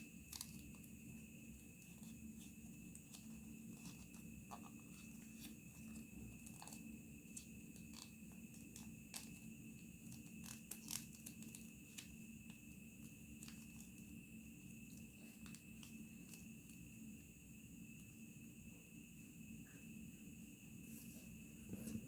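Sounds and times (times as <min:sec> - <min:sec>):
paper crinkling while folded: 0:00.0 - 0:14.2.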